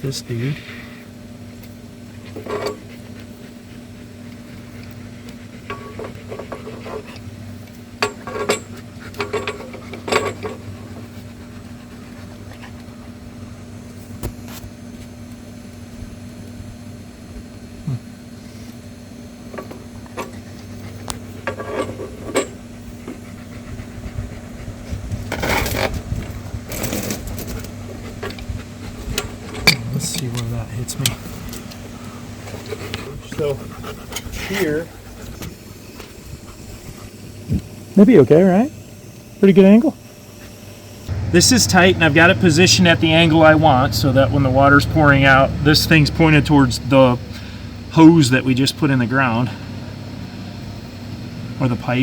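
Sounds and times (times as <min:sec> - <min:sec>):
low hum: 0:38.9 - 0:51.9.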